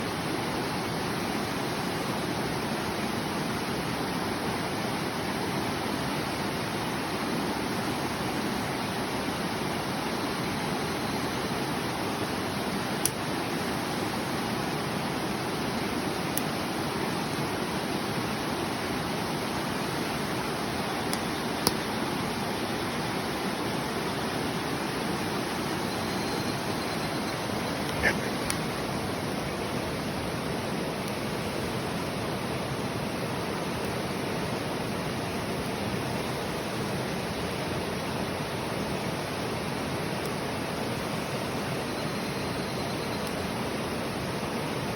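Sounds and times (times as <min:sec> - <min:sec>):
river rushing: 0:00.0 - 0:42.4
campfire crackling: 0:11.6 - 0:23.9, 0:24.7 - 0:41.8, 0:43.2 - 0:44.9.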